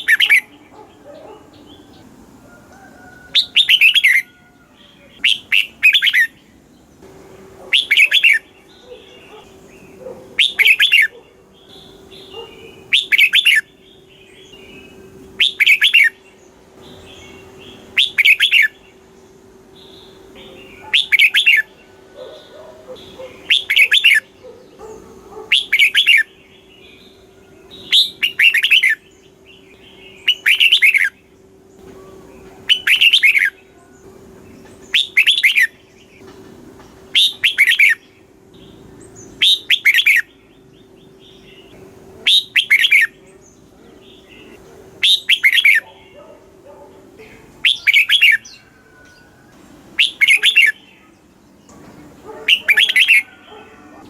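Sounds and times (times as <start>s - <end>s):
bird singing warbled phrases: 0.0s - 54.0s.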